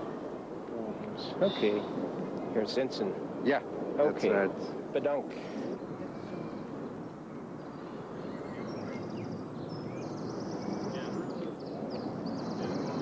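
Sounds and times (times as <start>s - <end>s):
low outdoor rumble: 0.0s - 13.0s
small birds chirping: 1.1s - 2.6s, 5.6s - 13.0s.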